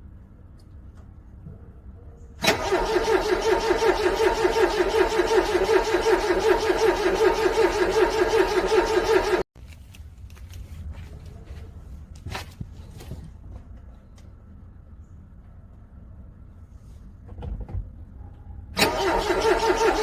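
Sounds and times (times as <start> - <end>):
car engine cranking: 2.4 - 9.4, 18.8 - 20.0.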